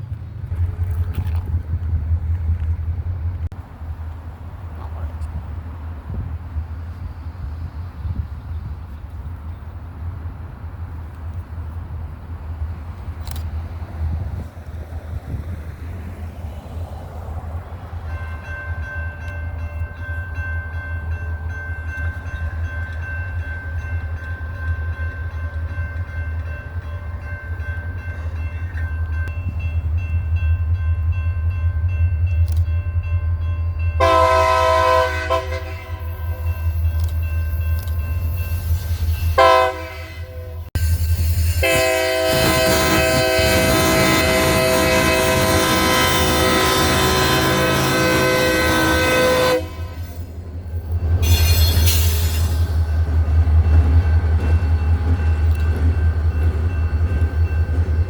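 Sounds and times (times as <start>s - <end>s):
diesel locomotives rumbling past: 0.0s - 58.0s
locomotive air horn: 34.0s - 36.5s, 39.4s - 40.7s, 41.5s - 50.2s.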